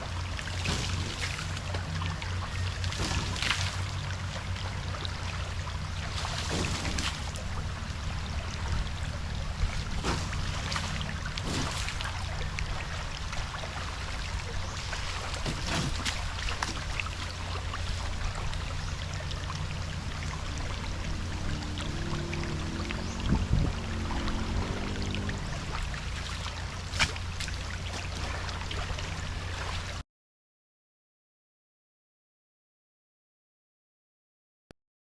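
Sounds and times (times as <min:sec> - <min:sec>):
water rushing and splashing: 0:00.0 - 0:30.0
car humming: 0:00.1 - 0:16.4, 0:17.1 - 0:27.8.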